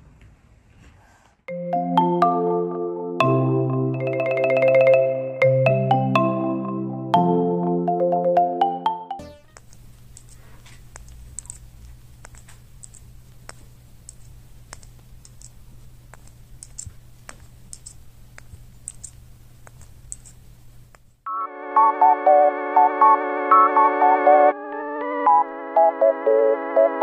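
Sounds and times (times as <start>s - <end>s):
electronic music with bright melody: 1.5s - 9.6s, 21.3s - 27.0s
light clicks and ticks: 9.5s - 21.2s.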